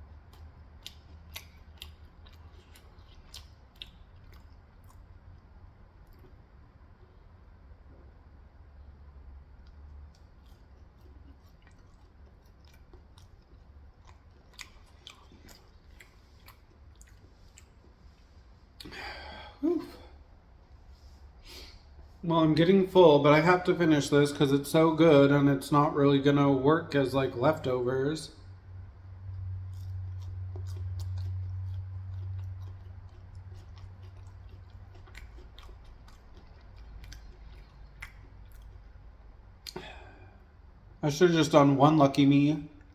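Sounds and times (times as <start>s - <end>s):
person chewing: 0.0s - 7.2s, 9.4s - 22.2s, 29.3s - 40.9s
sharp mouth clicks: 29.8s - 39.9s.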